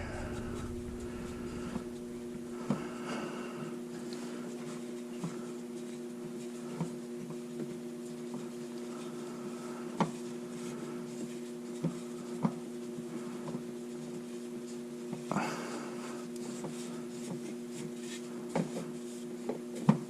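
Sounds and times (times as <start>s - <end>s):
electrical hum: 0.0s - 4.6s.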